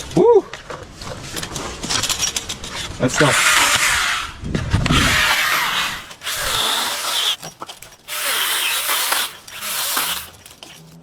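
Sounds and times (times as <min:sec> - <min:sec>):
power saw cutting: 0:03.1 - 0:10.8.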